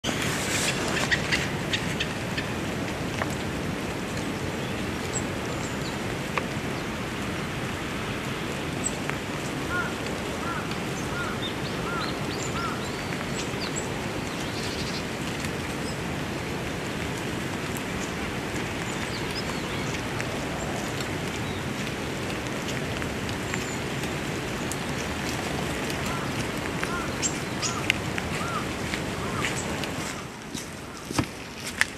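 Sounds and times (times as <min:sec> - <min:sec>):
lower arched bird calls: 0:09.7 - 0:15.1, 0:25.9 - 0:31.1.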